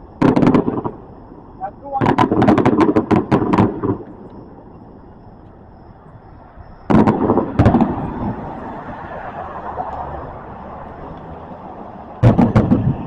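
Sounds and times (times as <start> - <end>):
firework cracks: 0.0 - 1.1, 1.9 - 4.4, 6.9 - 8.5, 12.2 - 13.0
firework booms: 0.0 - 4.6, 6.8 - 8.5, 12.2 - 13.0.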